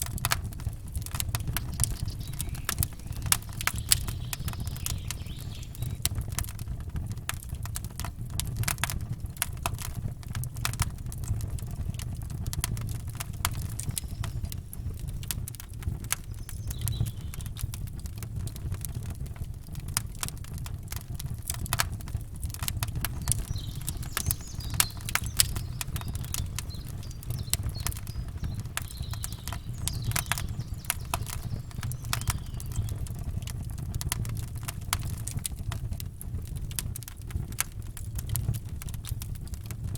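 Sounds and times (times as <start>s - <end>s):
campfire crackling: 0.0s - 39.9s
faint bird chirps: 1.4s - 6.1s, 13.6s - 14.9s, 16.2s - 17.6s, 23.0s - 33.3s.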